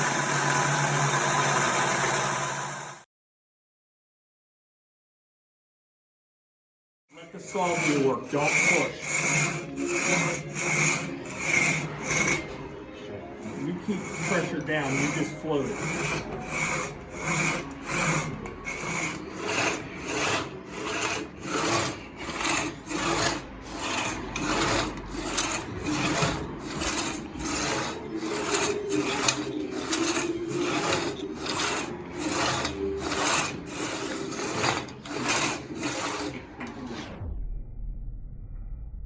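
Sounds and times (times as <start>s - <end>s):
hand saw cutting wood: 0.0s - 3.0s, 7.2s - 12.6s, 13.4s - 37.0s.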